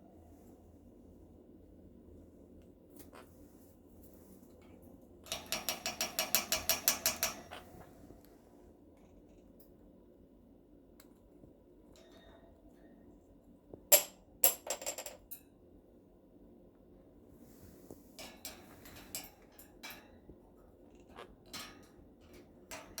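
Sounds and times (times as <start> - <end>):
parrot knocking stick on surfaces: 5.4 - 7.6.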